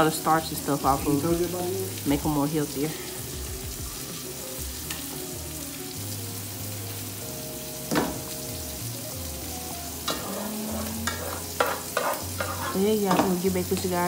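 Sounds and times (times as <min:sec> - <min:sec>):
chicken sizzling in pan: 0:00.0 - 0:14.0
pot set down with clunk: 0:07.9 - 0:08.3.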